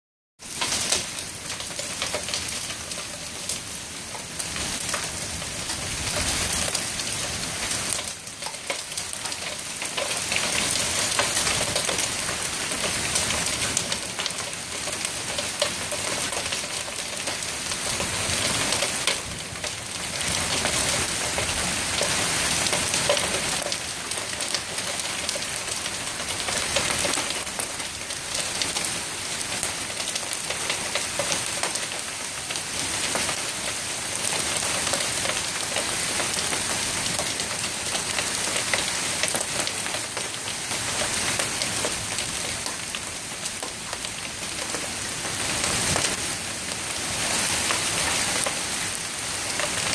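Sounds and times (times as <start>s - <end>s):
rain hiss: 0.4s - 49.9s
hail clattering: 0.6s - 4.2s, 8.0s - 28.8s.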